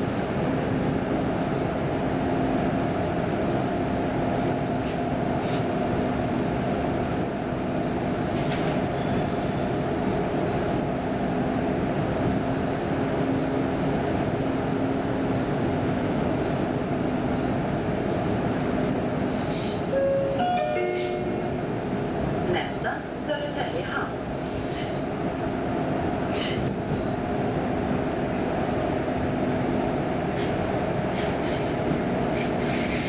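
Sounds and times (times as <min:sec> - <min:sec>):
electric train rumbling: 0:00.0 - 0:33.0
two-note tone: 0:20.0 - 0:21.6.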